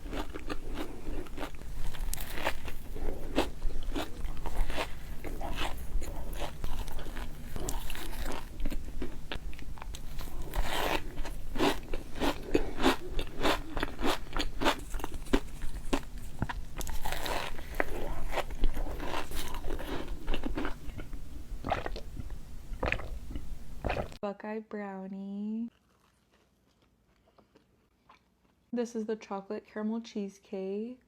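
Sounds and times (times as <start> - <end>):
crunchy food being chewed: 0.0 - 24.2, 25.7 - 28.7.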